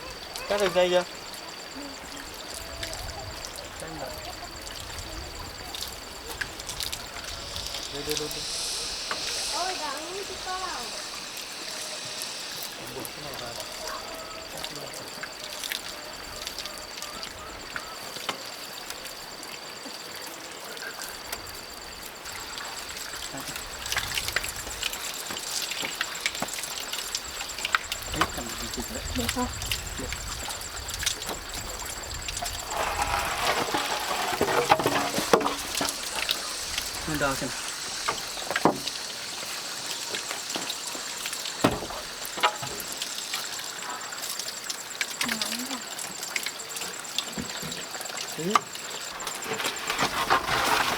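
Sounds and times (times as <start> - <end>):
running water trickling: 0.0 - 50.9
steady high-pitched hiss: 0.0 - 50.9
high-pitched whine: 7.6 - 14.7.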